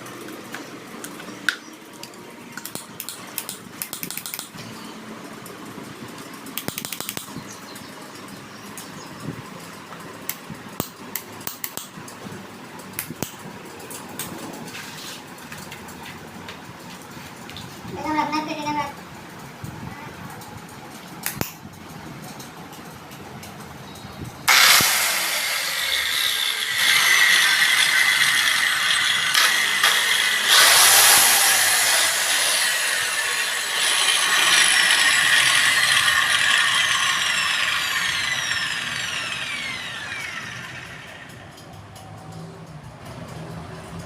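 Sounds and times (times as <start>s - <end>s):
angle grinder motor whining: 24.5s - 41.9s.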